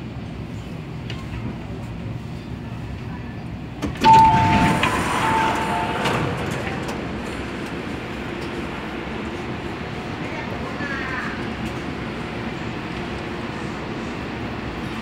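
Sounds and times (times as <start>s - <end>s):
train hum: 0.0s - 15.0s
sliding doors rushing open: 3.8s - 8.9s.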